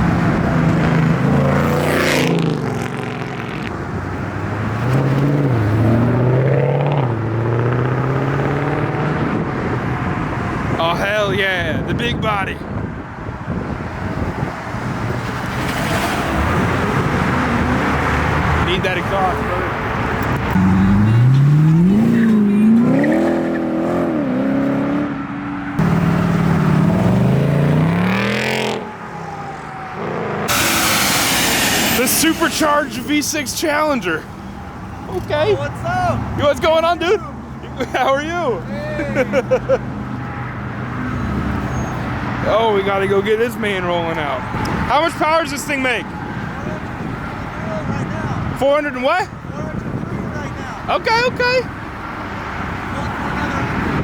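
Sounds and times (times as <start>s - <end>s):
car engine revving hard: 0.0s - 3.7s, 4.4s - 10.2s, 20.5s - 28.9s, 30.0s - 33.3s
car engines accelerating hard: 0.0s - 12.0s, 12.7s - 54.0s
loud exhaust notes: 25.7s - 35.2s.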